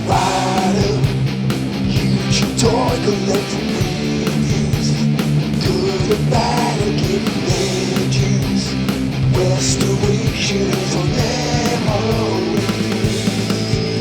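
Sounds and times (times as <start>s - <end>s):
person singing: 0.0s - 1.1s, 2.0s - 4.9s, 5.6s - 8.6s, 9.4s - 12.9s
drum beat: 0.0s - 14.0s
electric guitar: 0.0s - 14.0s.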